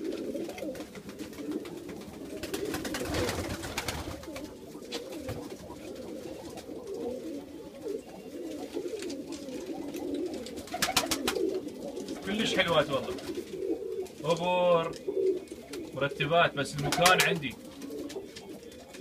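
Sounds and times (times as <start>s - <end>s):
pigeons cooing: 0.0s - 19.0s
clicks and rustles: 8.6s - 12.3s.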